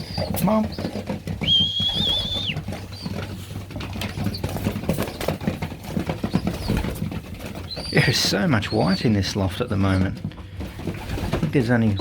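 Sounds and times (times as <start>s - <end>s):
pigeons pecking grain: 0.0s - 12.0s
wavering whistle: 1.4s - 2.6s.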